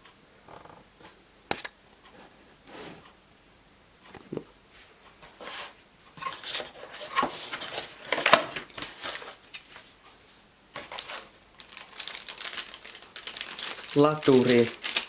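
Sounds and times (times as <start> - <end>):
packaging rustling: 6.2 - 9.8, 10.8 - 15.0.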